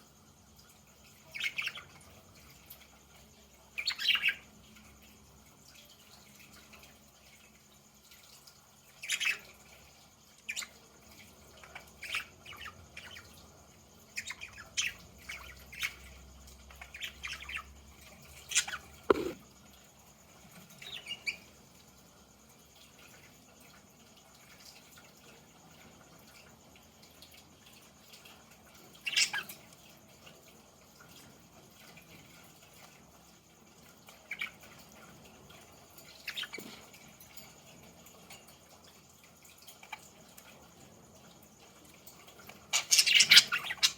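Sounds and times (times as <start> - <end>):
budgies chirping and clicking: 1.2 - 2.1, 10.5 - 13.4, 14.2 - 19.4, 29.0 - 29.6, 36.0 - 37.3, 42.3 - 43.9.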